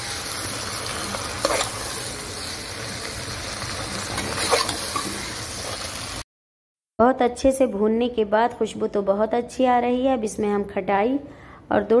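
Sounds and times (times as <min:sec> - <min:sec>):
vegetables sizzling in oil: 0:00.0 - 0:06.2
steel spoon scraping pot: 0:01.3 - 0:02.1, 0:04.1 - 0:05.9.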